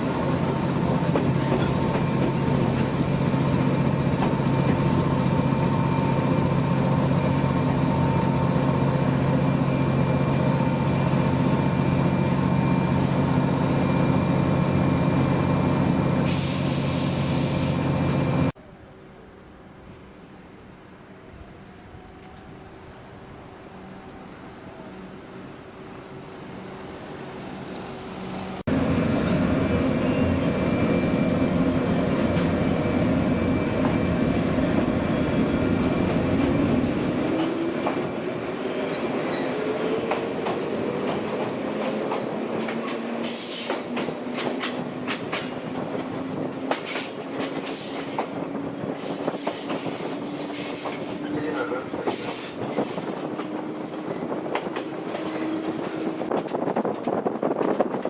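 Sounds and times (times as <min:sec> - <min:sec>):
train rumble on rails: 0:00.0 - 0:58.0
rail-joint clicks: 0:00.4 - 0:05.2, 0:29.6 - 0:35.0, 0:38.9 - 0:58.0.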